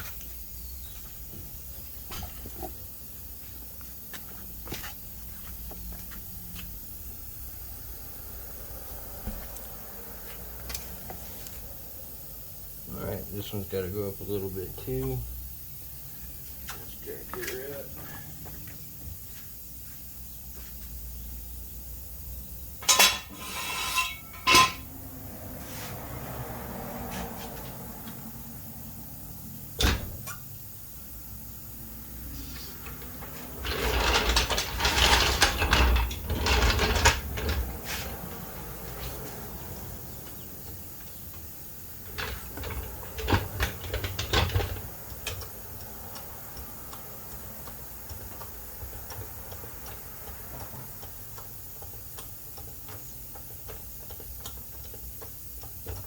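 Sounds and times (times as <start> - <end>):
metal clanking and rattling: 22.8 - 24.9, 33.6 - 37.8.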